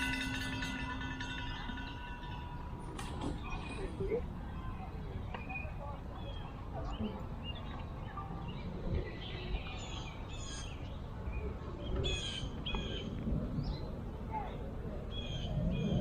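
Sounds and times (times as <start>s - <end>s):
low outdoor rumble: 0.0s - 16.0s
songbirds chirping: 0.0s - 16.0s.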